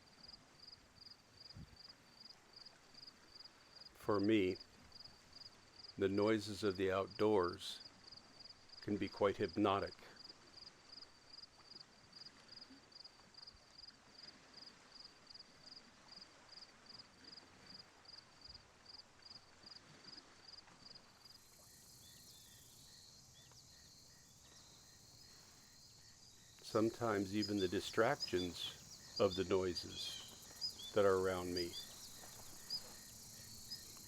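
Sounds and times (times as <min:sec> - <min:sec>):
cricket chirping: 0:00.0 - 0:34.0
high insect buzz: 0:21.2 - 0:34.0.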